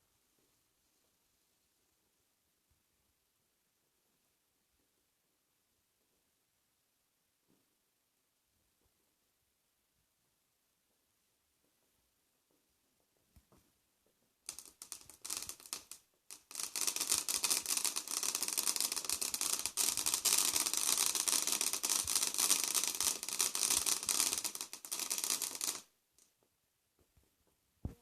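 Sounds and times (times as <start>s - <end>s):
firework crackling: 14.4s - 26.3s.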